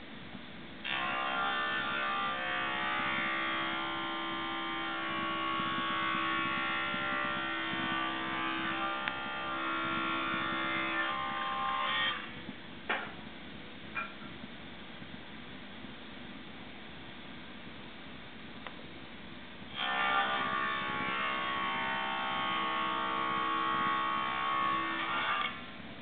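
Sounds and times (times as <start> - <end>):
power tool motor whine: 0.8 - 12.4, 19.7 - 25.7.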